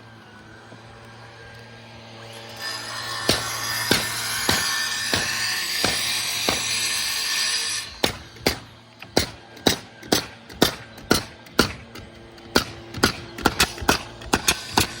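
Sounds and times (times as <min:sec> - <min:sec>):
hammer strikes ringing: 0:03.2 - 0:07.0.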